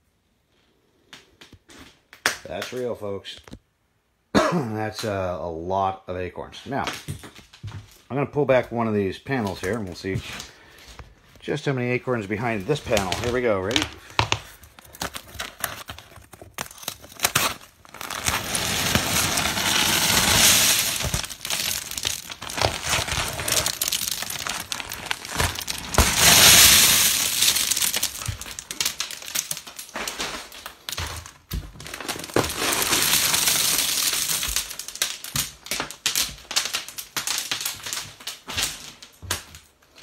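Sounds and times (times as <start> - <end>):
insulation crinkling and tearing: 9.3 - 40.0
acorns pouring and clattering: 12.2 - 38.4.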